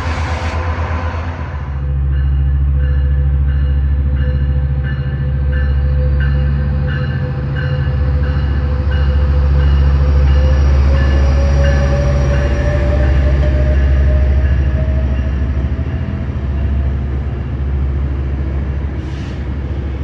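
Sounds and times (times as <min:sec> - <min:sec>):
steady tone: 0:00.0 - 0:03.7
diesel locomotive rumble: 0:00.0 - 0:20.0.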